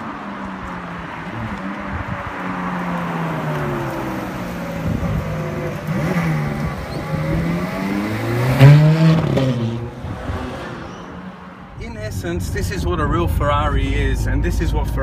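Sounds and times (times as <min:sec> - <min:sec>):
sports car driving past: 0:00.0 - 0:11.9.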